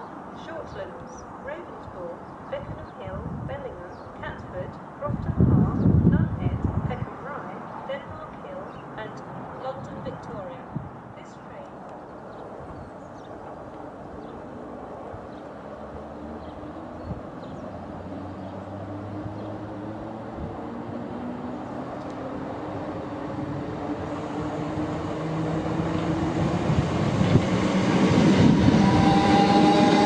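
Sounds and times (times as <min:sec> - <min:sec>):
electric train approaching: 0:12.0 - 0:30.0
train whining tone: 0:22.2 - 0:30.0.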